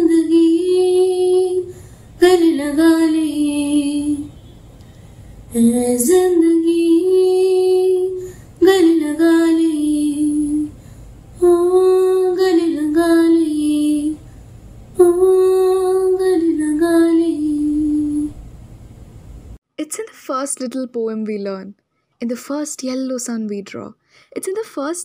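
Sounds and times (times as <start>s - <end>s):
girl singing unaccompanied: 0.0s - 4.4s, 5.5s - 10.8s, 11.4s - 14.3s, 15.0s - 18.4s
breaths: 1.7s - 2.2s, 4.7s - 5.5s, 8.2s - 8.6s, 10.7s - 11.3s, 14.2s - 14.8s, 24.0s - 24.4s.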